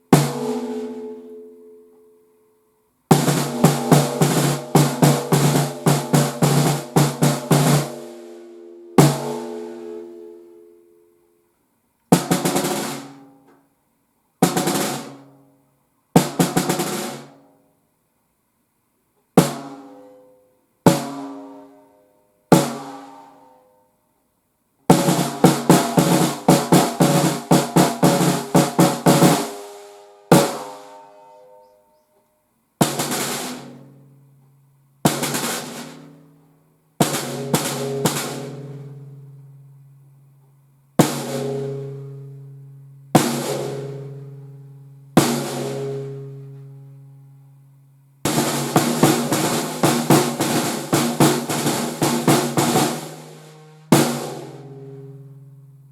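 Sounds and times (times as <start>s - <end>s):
snare drum hits: 3.1s - 8.2s, 48.3s - 54.6s
snare drum roll: 3.1s - 8.4s, 9.0s - 9.8s, 12.2s - 13.2s, 14.4s - 15.3s, 16.2s - 17.4s, 24.9s - 30.9s, 32.8s - 33.8s, 35.1s - 36.1s, 37.0s - 38.9s, 41.0s - 41.8s, 45.2s - 46.1s, 48.3s - 54.7s
low ringing tone: 8.1s - 11.3s.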